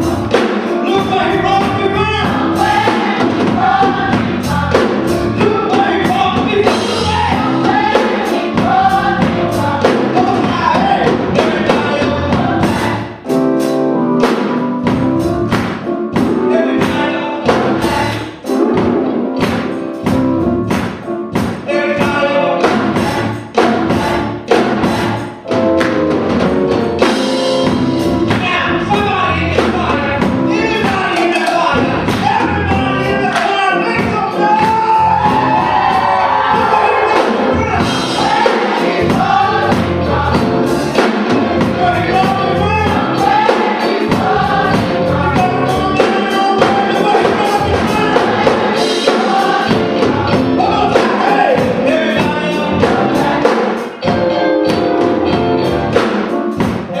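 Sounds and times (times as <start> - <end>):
choir singing: 0.0 - 13.4, 16.4 - 18.6, 21.7 - 25.7, 32.6 - 54.1
drum kit beat: 0.0 - 57.0
live band playing: 0.0 - 57.0.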